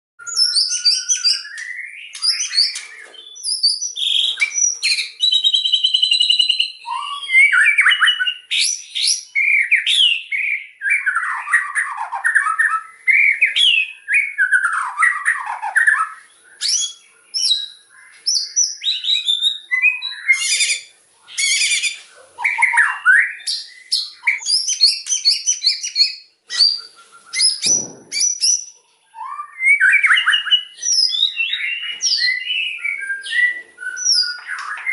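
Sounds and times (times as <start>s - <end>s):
bird singing: 0.2s - 34.9s.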